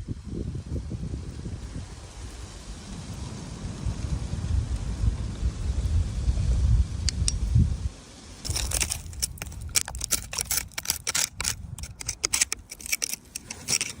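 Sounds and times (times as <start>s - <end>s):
hard objects clicking and scraping: 8.4s - 14.0s.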